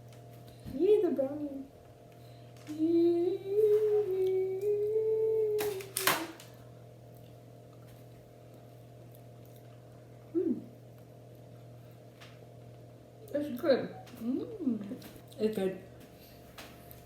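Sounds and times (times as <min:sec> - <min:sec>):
steady low hum: 0:00.0 - 0:17.0
person humming: 0:02.6 - 0:06.4, 0:10.3 - 0:10.8, 0:14.1 - 0:15.1.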